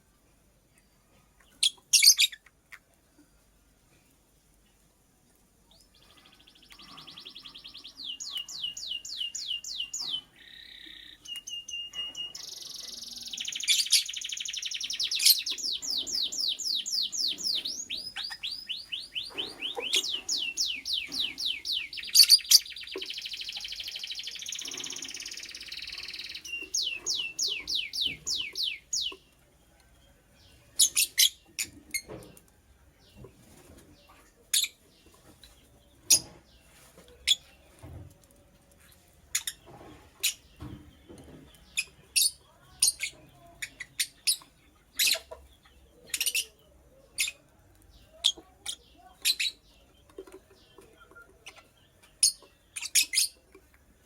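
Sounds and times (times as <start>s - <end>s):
bird chirping rapidly: 6.3s - 29.2s.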